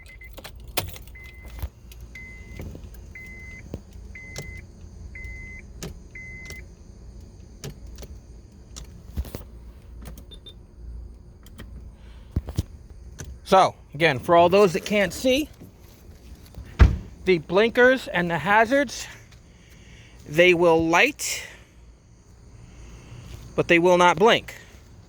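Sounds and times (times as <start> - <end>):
car warning chime beeping: 0.0 - 0.4, 1.1 - 8.0, 10.2 - 10.6
low steady rumble: 0.0 - 25.0.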